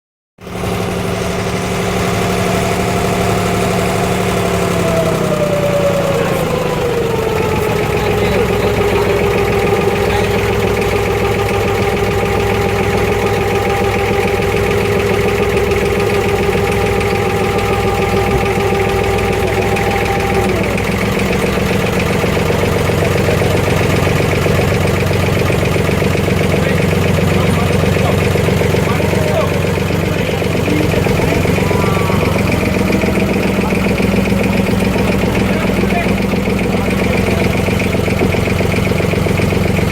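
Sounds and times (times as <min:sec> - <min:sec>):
boat engine running: 0:00.4 - 0:39.9.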